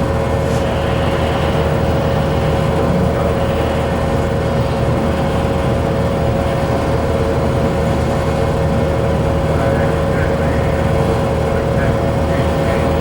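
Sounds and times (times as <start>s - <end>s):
constant hum: 0.0s - 13.0s
rumble of hall noise: 0.0s - 13.0s.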